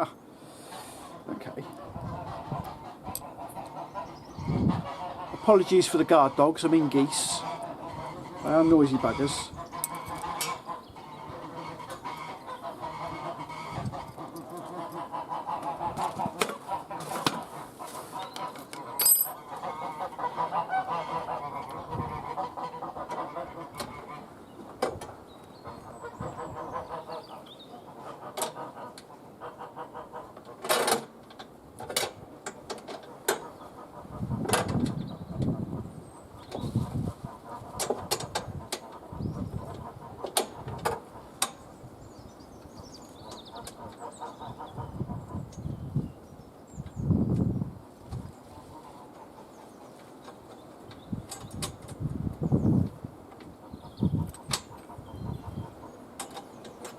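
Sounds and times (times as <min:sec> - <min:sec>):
geese honking: 0:00.5 - 0:24.4, 0:25.6 - 0:30.6
birds chirping faintly: 0:38.6 - 0:56.9.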